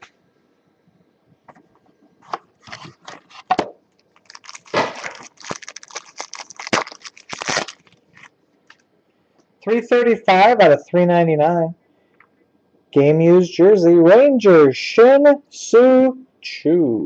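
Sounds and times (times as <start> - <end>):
packaging tearing and crinkling: 2.6 - 8.8.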